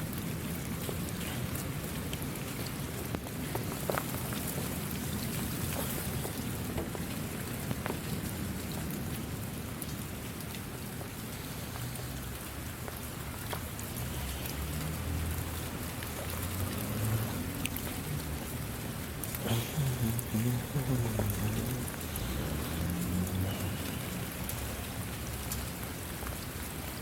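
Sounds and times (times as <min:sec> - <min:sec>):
raindrops ticking: 0:00.0 - 0:27.0
steady rain: 0:00.0 - 0:27.0.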